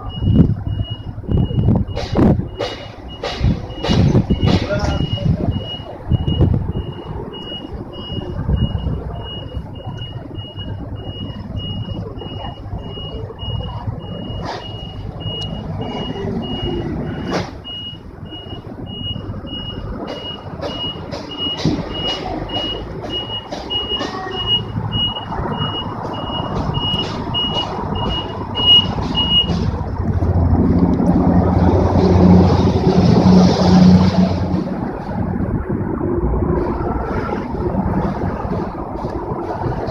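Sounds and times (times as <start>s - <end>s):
high warning beeps: 0.0s - 29.7s.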